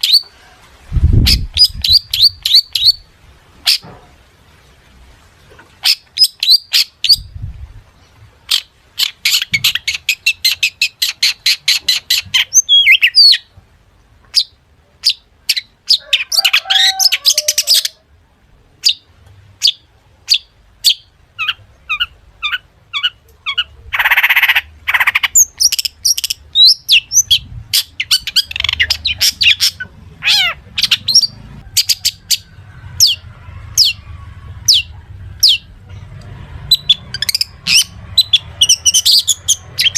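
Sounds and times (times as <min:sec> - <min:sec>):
bird singing: 0:00.0 - 0:00.4, 0:01.2 - 0:03.9, 0:05.8 - 0:07.3, 0:08.0 - 0:13.5, 0:18.8 - 0:39.9
bird harsh rasping call: 0:15.1 - 0:18.0, 0:19.6 - 0:35.8.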